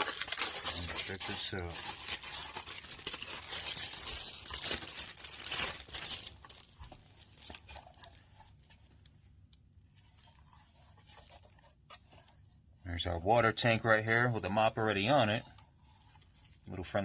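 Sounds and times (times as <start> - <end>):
plastic packaging crinkling: 0.0 - 11.7.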